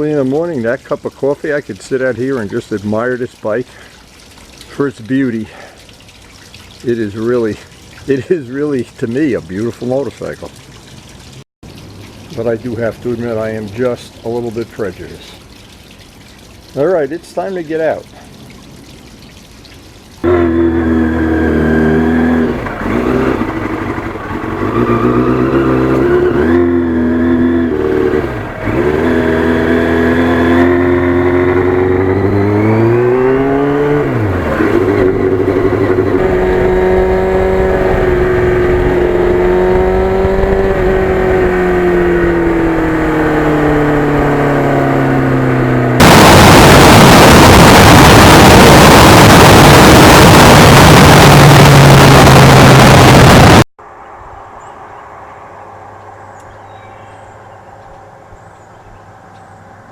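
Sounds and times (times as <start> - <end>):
motorcycle engine accelerating: 20.2 - 53.7
loud rush of noise: 45.8 - 53.7.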